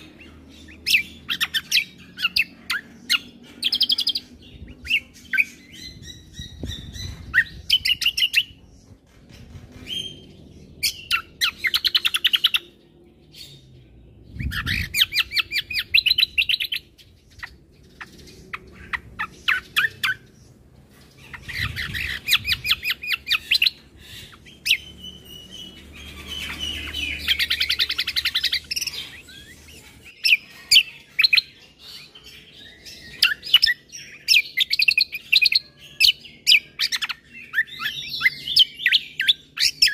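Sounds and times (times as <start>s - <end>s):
songbird trilling: 0.0s - 8.6s, 10.0s - 13.6s, 14.3s - 20.6s, 21.2s - 39.9s
sharp bird chirps: 14.3s - 39.9s.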